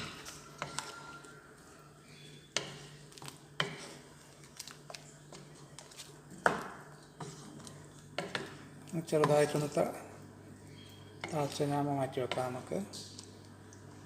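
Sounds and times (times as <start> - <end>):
metal spoon scraping a pot: 0.0 - 1.4
low steady hum: 0.0 - 14.0.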